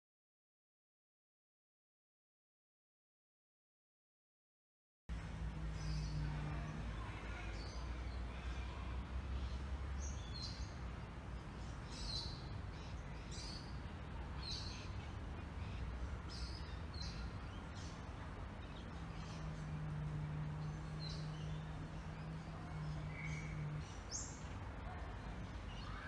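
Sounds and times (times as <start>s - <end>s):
birds chirping: 5.1s - 26.0s
low hum: 15.1s - 25.6s.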